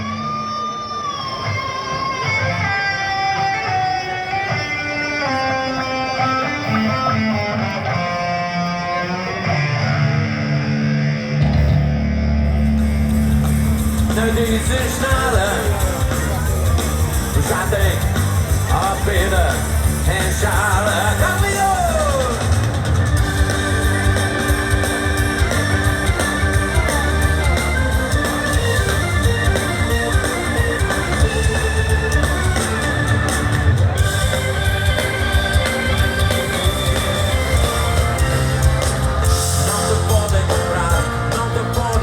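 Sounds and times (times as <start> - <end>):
drums: 0.0 - 42.0
live band with electric guitar: 0.0 - 42.0
organ-like keyboard chords: 0.0 - 42.0
deep bass line: 11.4 - 42.0.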